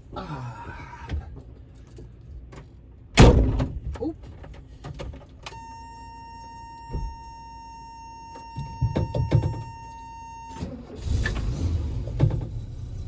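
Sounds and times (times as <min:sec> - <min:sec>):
high warning buzzer: 0:05.6 - 0:10.7
knocks inside a vehicle cab: 0:08.6 - 0:09.7
engine cranking and starting: 0:10.5 - 0:13.0.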